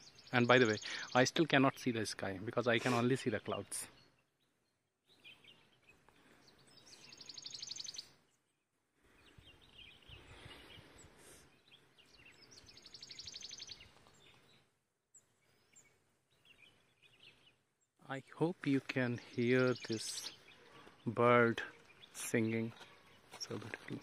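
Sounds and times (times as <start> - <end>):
soft bird chirps: 0.0 - 1.9, 2.5 - 24.0.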